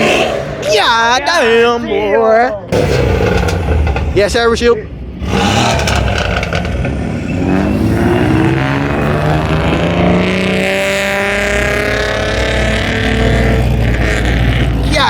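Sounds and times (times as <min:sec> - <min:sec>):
car engine accelerating hard: 0:05.1 - 0:15.0.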